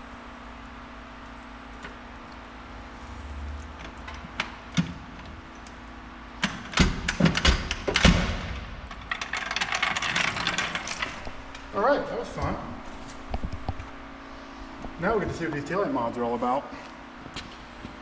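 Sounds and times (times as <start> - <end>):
steady low hum: 0.0 - 18.0
rapid rattling clicks: 6.4 - 11.7.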